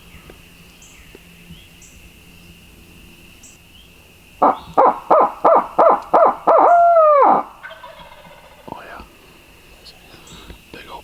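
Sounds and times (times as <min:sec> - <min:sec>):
owl hooting: 0:03.4 - 0:10.5.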